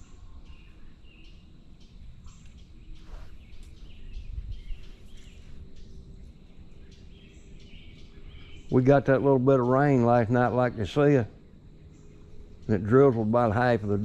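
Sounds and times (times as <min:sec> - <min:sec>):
bird chirps: 0:00.0 - 0:14.0
steady low rumble: 0:00.0 - 0:14.0.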